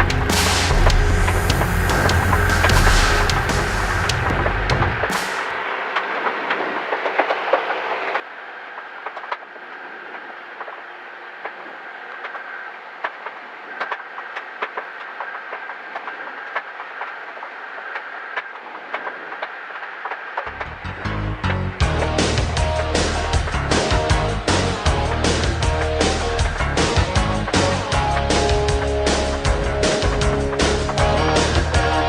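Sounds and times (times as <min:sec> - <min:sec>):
aircraft cabin whine: 0:00.0 - 0:15.8.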